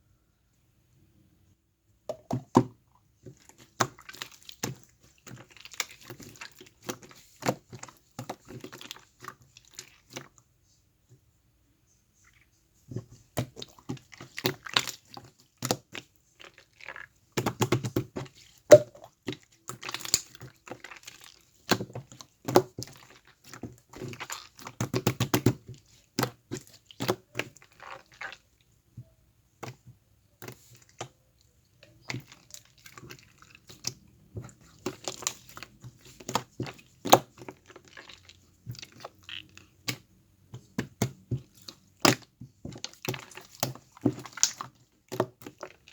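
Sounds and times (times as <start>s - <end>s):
slime squished by hand: 13.0s - 28.6s, 29.6s - 45.9s.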